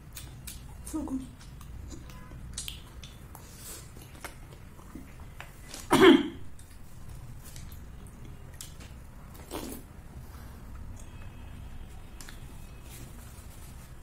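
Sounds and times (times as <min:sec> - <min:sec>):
wet chewing: 0:00.0 - 0:05.9.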